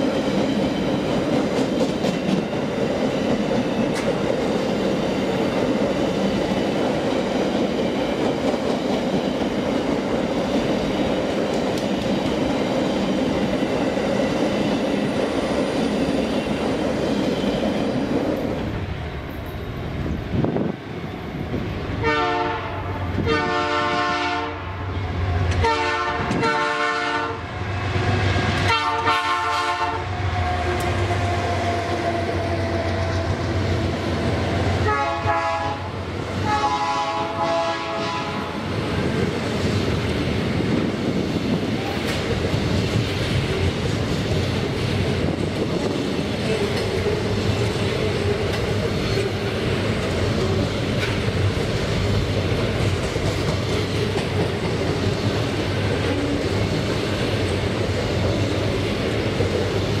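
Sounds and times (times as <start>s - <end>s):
train wheels rattling on rails: 0.0s - 60.0s
locomotive air horn blasts: 22.0s - 24.8s, 25.6s - 27.4s, 28.7s - 30.1s, 34.8s - 38.6s.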